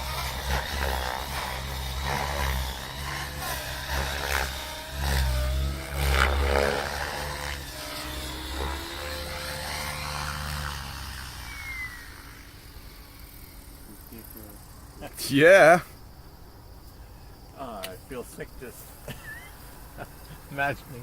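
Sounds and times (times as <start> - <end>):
model helicopter motor whine: 0.0 - 15.1
helicopter rotor blades chopping: 0.0 - 15.3.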